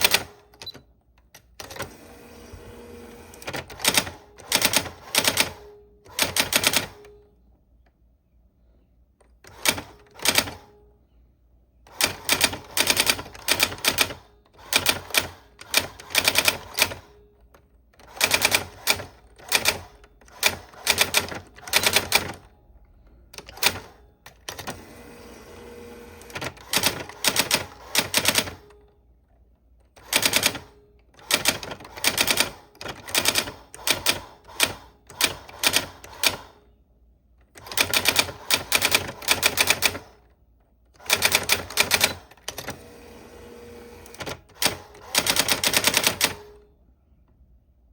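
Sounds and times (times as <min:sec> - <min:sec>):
typewriter keys clacking: 0:18.0 - 0:22.5, 0:26.3 - 0:28.7, 0:30.0 - 0:36.5, 0:37.5 - 0:40.1, 0:41.0 - 0:42.8, 0:44.1 - 0:46.4.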